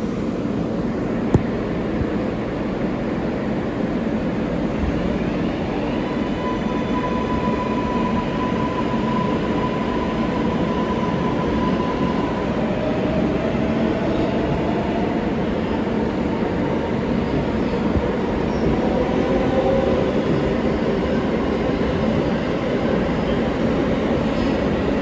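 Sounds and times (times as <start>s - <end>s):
subway car wheels rumbling: 0.0s - 25.0s.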